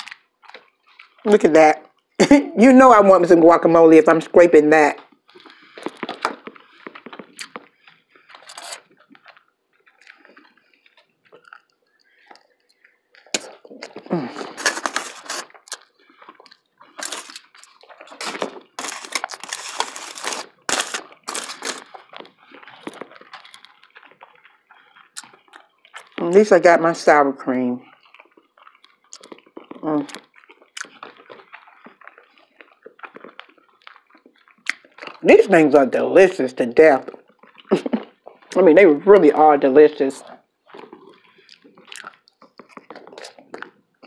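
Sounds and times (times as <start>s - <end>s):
person chewing with wet mouth sounds: 0.0s - 2.2s, 4.8s - 26.9s, 27.8s - 44.0s.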